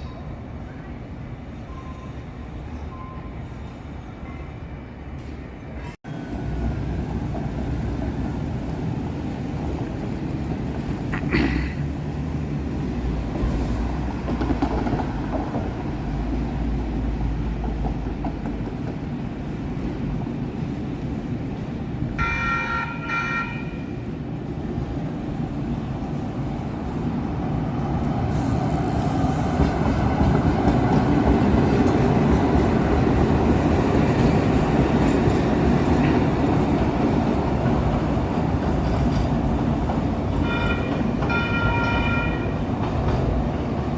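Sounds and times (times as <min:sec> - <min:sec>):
light rail train rumbling: 0:00.0 - 0:43.9
train horn toots: 0:22.2 - 0:23.9, 0:40.4 - 0:42.6.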